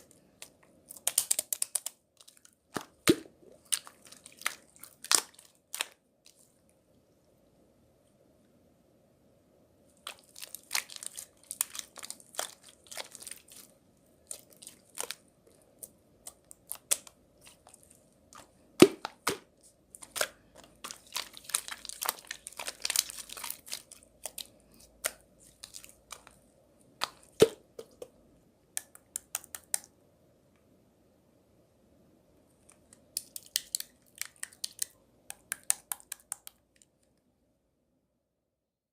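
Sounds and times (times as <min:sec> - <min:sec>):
faint steady hum: 0:00.0 - 0:38.5
paper crinkling and rustling: 0:20.0 - 0:26.4.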